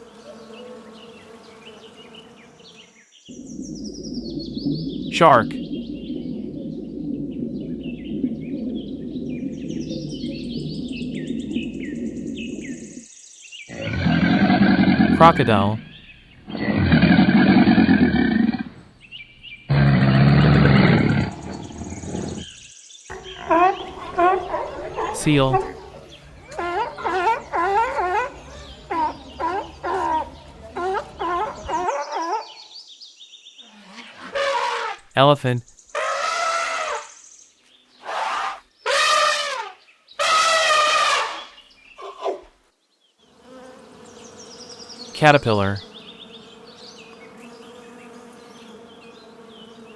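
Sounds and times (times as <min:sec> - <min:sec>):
crocodile bellowing: 0:03.3 - 0:13.0, 0:13.7 - 0:18.9, 0:19.7 - 0:22.5, 0:23.1 - 0:32.5, 0:40.2 - 0:41.4
elephant trumpeting: 0:23.1 - 0:32.0, 0:38.0 - 0:41.4.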